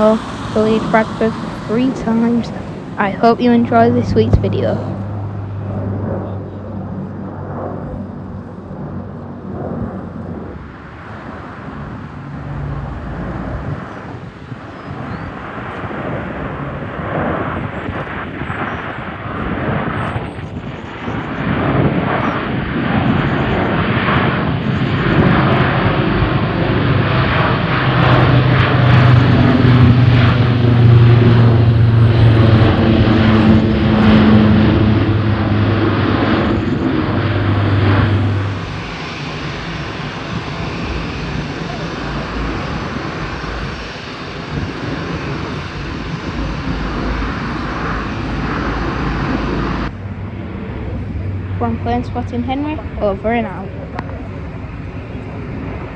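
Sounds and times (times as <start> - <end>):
propeller aircraft flying by: 0.0 - 55.9.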